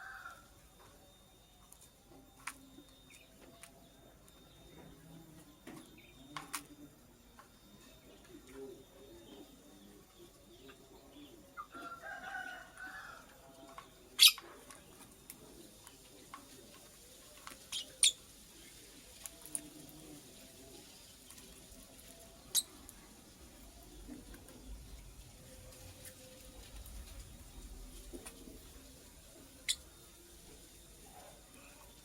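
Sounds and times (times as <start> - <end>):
lovebird chirping: 21.7 - 23.1, 29.4 - 32.0.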